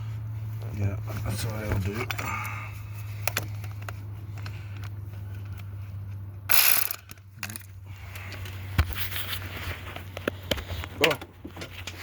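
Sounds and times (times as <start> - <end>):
loud burst of rattling: 6.5 - 7.1
ratchet wrench clicking: 6.5 - 7.7.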